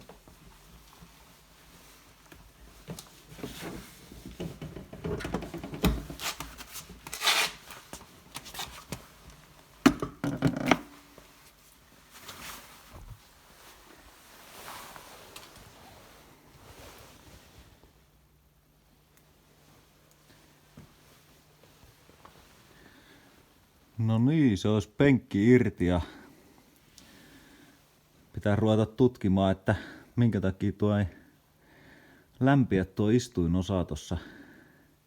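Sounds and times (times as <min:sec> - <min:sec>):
rustling: 0:10.8 - 0:18.0.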